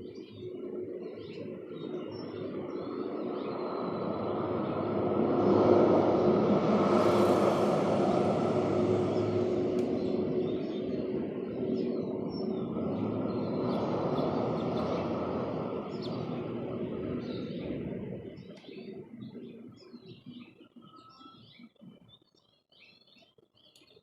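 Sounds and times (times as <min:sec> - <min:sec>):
small birds chirping: 0:00.0 - 0:04.8, 0:09.1 - 0:24.0
low mechanical rumble: 0:00.5 - 0:19.0.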